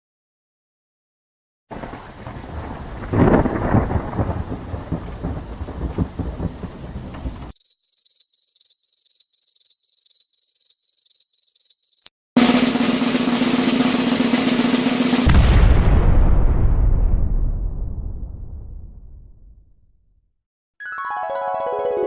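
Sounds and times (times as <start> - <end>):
rolling thunderclap: 1.7 - 7.5, 12.4 - 19.7
steady rain: 1.7 - 7.5
crickets chirping: 7.5 - 12.1.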